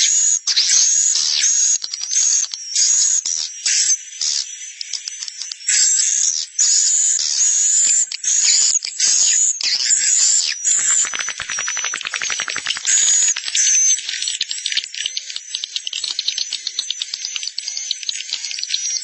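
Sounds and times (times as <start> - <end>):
high buzzy bird chirps: 9.2 - 14.1
rapid clicking: 10.8 - 13.8.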